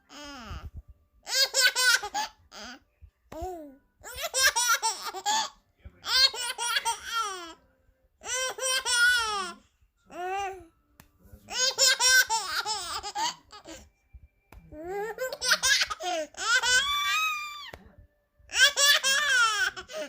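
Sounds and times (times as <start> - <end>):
baby laughing: 1.3 - 2.8, 4.0 - 7.5, 8.2 - 9.6, 11.5 - 13.8, 14.9 - 17.8, 18.5 - 20.0.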